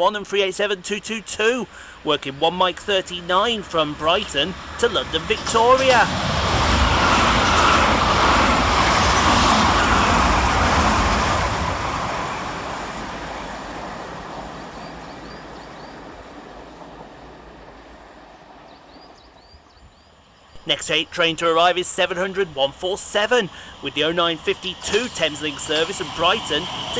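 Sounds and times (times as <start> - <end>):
electric train running: 2.6 - 17.8, 21.4 - 26.9.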